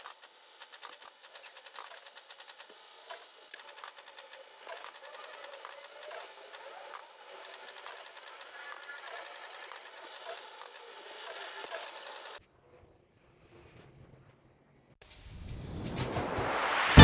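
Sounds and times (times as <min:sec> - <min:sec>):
light mechanical clicking: 0:00.0 - 0:12.4.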